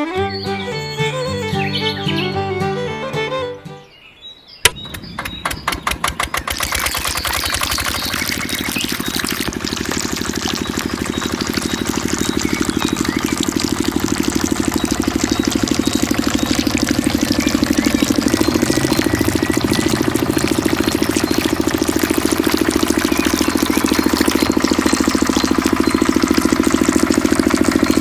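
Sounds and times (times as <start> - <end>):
small diesel engine starting: 4.7 - 28.0.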